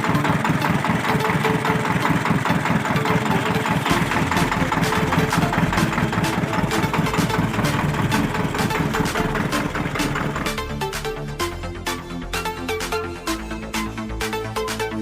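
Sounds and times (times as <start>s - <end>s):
tractor diesel engine chugging: 0.0s - 11.3s
deep engine rumble: 0.1s - 12.4s.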